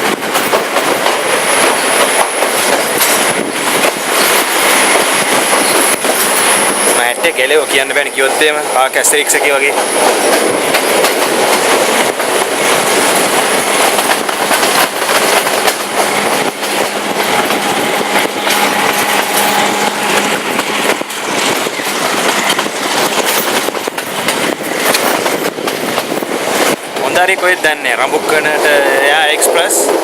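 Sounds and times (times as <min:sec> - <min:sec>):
wheels clicking over rail joints: 0:00.0 - 0:06.5, 0:10.0 - 0:19.6, 0:20.2 - 0:27.0
train carriage rattling and rumbling: 0:00.0 - 0:30.0.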